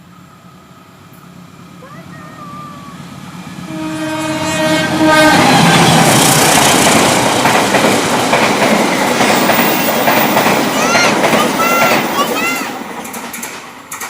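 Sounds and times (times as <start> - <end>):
train wheels rumbling on rails: 0.0 - 14.0
train horn: 3.7 - 6.0.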